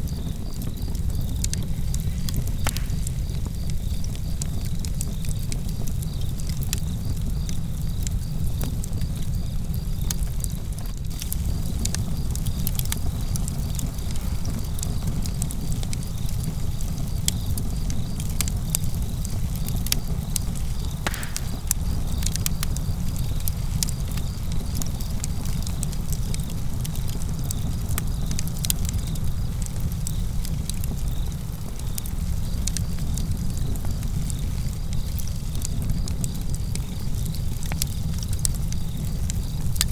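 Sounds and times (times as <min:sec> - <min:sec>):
crickets chirping: 0:00.0 - 0:28.4
campfire crackling and popping: 0:00.0 - 0:39.9
low fire rumble: 0:00.0 - 0:39.9.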